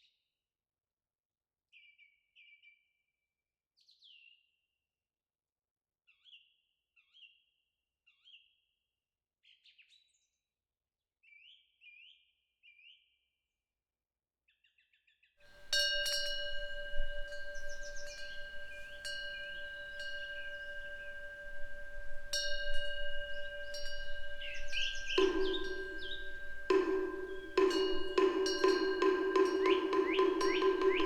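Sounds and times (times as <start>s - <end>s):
songbirds chirping: 15.6s - 31.0s
wind bell ringing: 15.6s - 31.0s.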